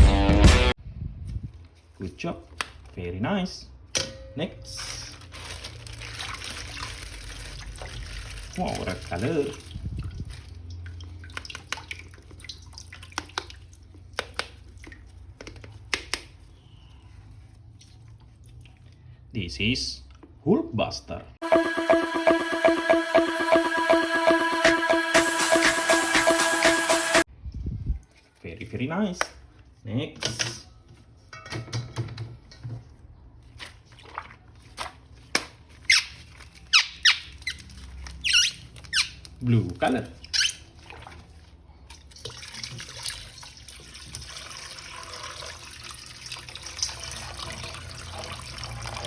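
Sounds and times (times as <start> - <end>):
water dripping and trickling: 5.2 - 16.0, 17.3 - 19.2, 36.2 - 49.0
quick falling squeaks: 35.9 - 39.2.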